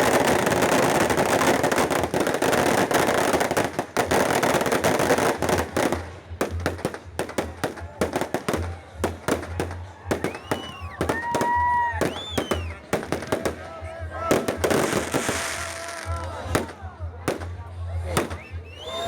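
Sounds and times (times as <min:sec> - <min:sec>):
fireworks crackling and banging: 0:00.0 - 0:19.0
whistling fireworks: 0:07.4 - 0:13.6, 0:14.3 - 0:16.7, 0:18.1 - 0:19.0.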